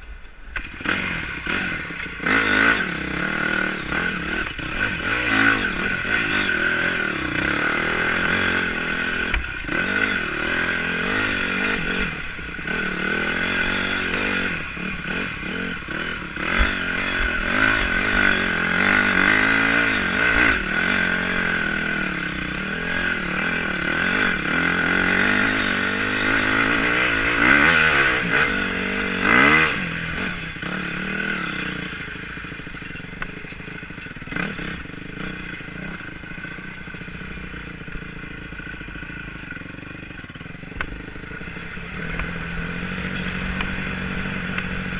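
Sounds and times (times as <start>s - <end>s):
motorcycle engine revving: 0.0s - 44.9s
bike clattering over rough ground: 30.5s - 36.6s.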